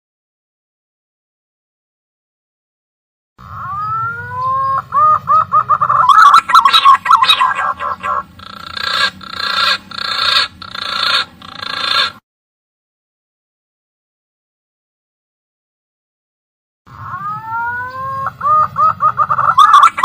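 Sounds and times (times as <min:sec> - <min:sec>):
hoarse pigeon notes: 0:03.4 - 0:12.2, 0:16.9 - 0:20.0
pigeon whistled calls: 0:03.5 - 0:12.2, 0:17.0 - 0:20.0.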